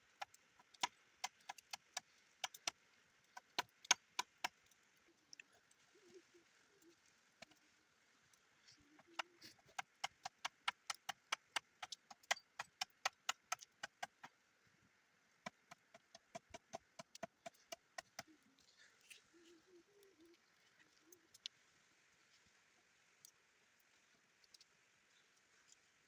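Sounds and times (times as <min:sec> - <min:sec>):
fast series of sharp knocks: 0:00.6 - 0:02.8, 0:03.4 - 0:04.6, 0:09.7 - 0:14.3, 0:15.5 - 0:18.3.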